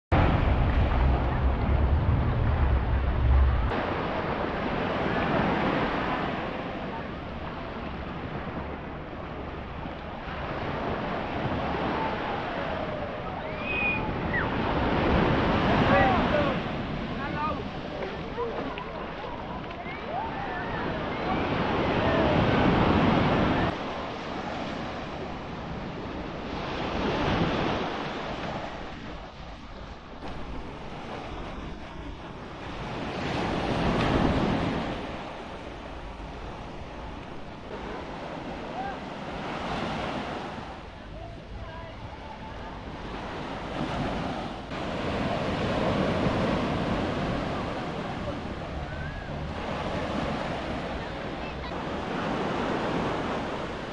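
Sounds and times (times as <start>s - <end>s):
wind buffeting microphone: 0.1s - 6.4s
waves washing onto beach: 0.1s - 53.9s.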